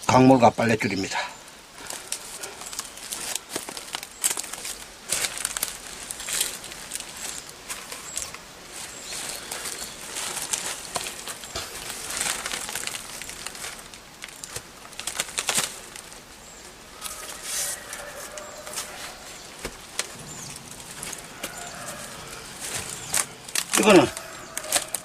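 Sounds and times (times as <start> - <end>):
books and debris rustling: 1.8 - 25.0
bird chirps: 16.4 - 23.4.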